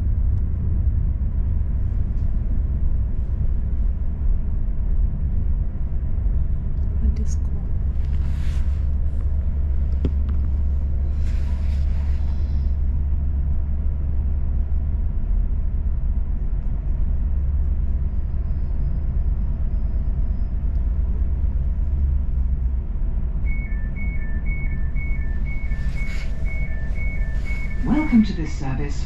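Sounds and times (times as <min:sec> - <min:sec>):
train rumbling from inside: 0:00.0 - 0:29.0
two-tone electronic beeping: 0:23.5 - 0:29.0.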